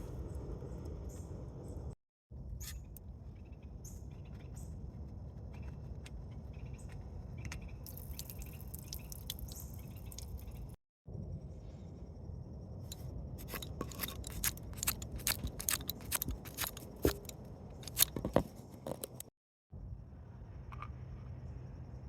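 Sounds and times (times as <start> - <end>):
hand tools clicking and scraping metal: 12.9 - 19.3.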